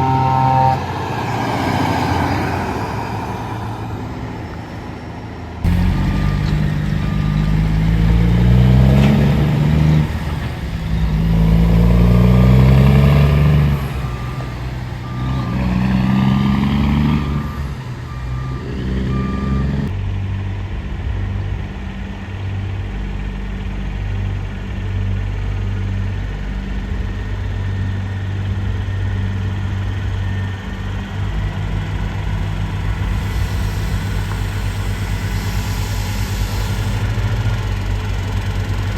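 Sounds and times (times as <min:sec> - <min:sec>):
diesel truck engine revving: 0:00.0 - 0:19.9, 0:26.4 - 0:38.9
intermittent beeping: 0:05.7 - 0:19.9.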